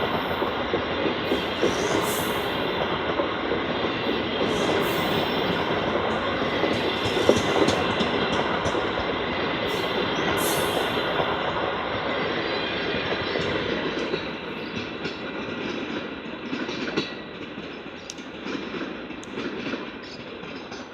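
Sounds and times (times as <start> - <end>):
train coaches rolling past: 0.0 - 20.9
wheels clicking over rail joints: 4.0 - 11.3.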